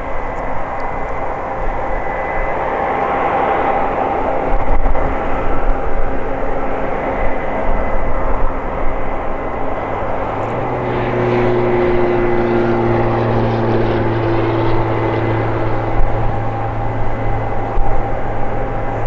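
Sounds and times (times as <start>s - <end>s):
combine harvester engine drone: 0.0s - 19.0s
low hum: 0.0s - 19.0s
higher tone: 9.0s - 19.0s.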